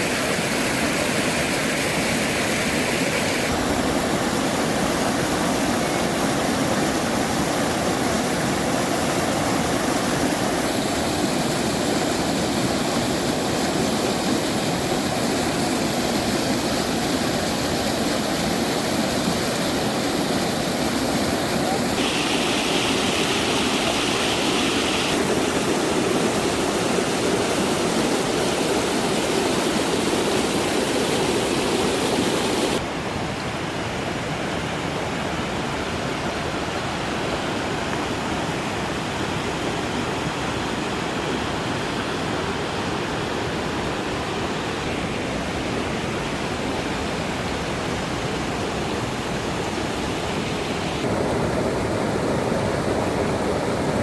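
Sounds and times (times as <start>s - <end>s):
flowing water rushing: 0.0s - 54.0s.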